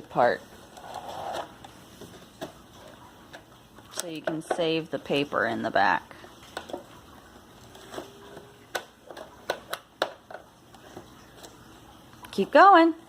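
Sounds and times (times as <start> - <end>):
handling noise: 6.3 - 11.7.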